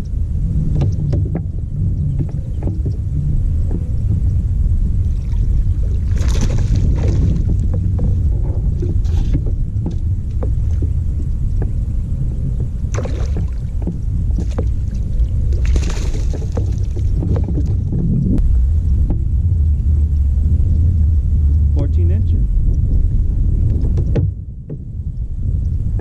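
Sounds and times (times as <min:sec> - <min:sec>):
steady low rumble: 0:00.0 - 0:26.0
water splashing: 0:05.0 - 0:11.8, 0:12.6 - 0:18.4.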